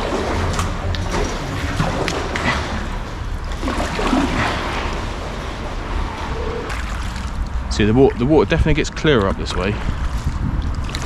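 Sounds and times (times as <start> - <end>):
paddle splashing water: 0.0 - 7.7
water dripping: 0.0 - 8.3.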